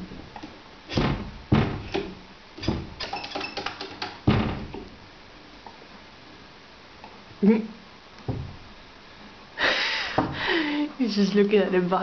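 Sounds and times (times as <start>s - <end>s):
sharp knocks and thumps: 0.0s - 5.0s, 8.2s - 8.8s.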